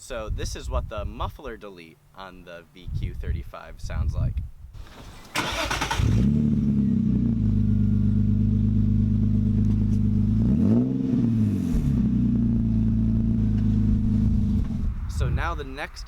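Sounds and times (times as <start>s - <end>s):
engine throttle blip: 5.0s - 10.4s
car engine idling: 5.4s - 10.5s.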